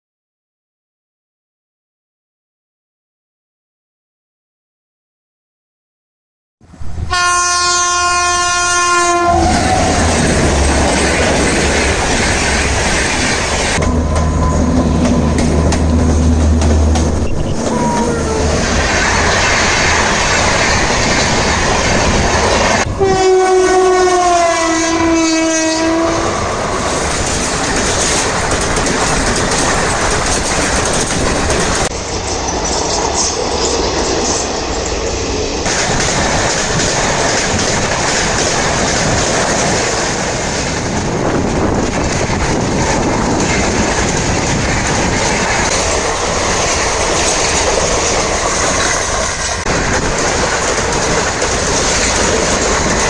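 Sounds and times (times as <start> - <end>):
train rumbling past: 6.6 - 53.0
locomotive horn: 7.0 - 10.1, 17.2 - 18.6, 22.8 - 26.4
wheels clacking over rail joints: 9.3 - 22.9, 26.4 - 53.0.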